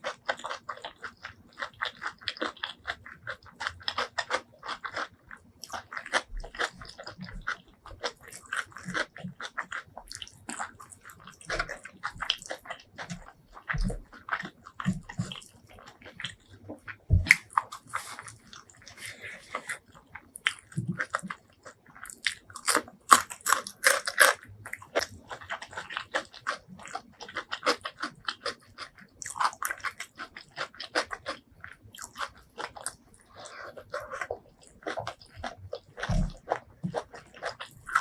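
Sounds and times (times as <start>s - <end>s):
biting and chewing crunches: 0.0s - 38.0s.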